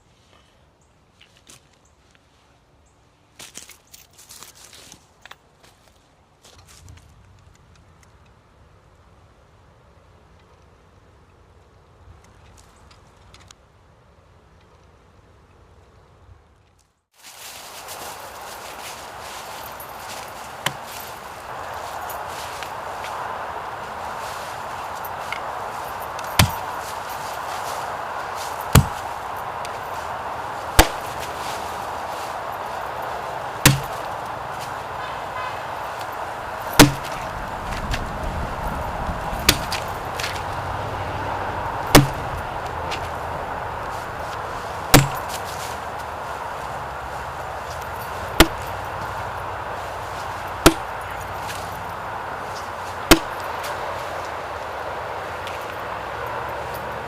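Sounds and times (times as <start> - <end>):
steady background hiss: 17.2 - 57.0
axe chopping wood: 20.6 - 20.9, 26.1 - 26.8, 28.7 - 29.8, 30.7 - 31.2, 33.6 - 34.1, 36.7 - 37.3, 39.4 - 40.4, 41.9 - 43.1, 44.9 - 45.4, 48.4 - 48.8, 50.6 - 51.2, 53.1 - 53.5
heavy blows into wood: 24.6 - 40.6, 41.8 - 43.2, 44.8 - 45.5, 48.3 - 48.8, 50.6 - 51.2, 53.1 - 53.5.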